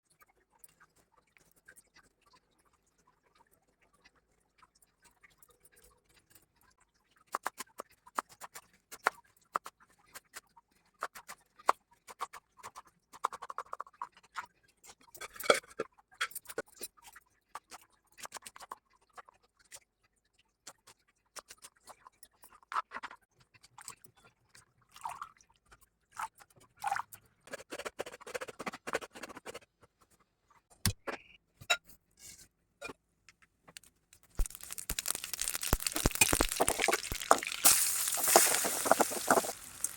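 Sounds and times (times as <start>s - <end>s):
kitchen utensils clicking and scraping: 15.2s - 16.6s, 33.8s - 39.9s.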